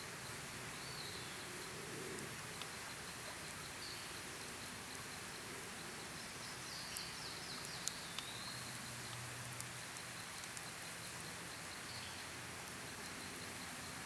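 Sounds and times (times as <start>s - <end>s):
faint high insect tone: 0.0s - 14.0s
outdoor hiss: 0.0s - 14.0s
campfire crackling: 0.2s - 14.0s.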